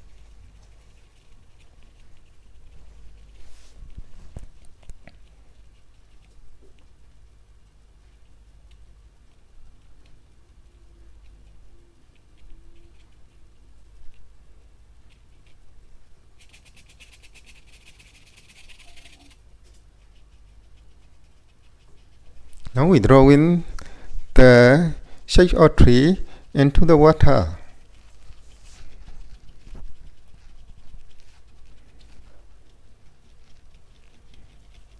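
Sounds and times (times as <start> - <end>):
paintbrush scrubbing on canvas: 0.0 - 6.0, 16.3 - 34.9.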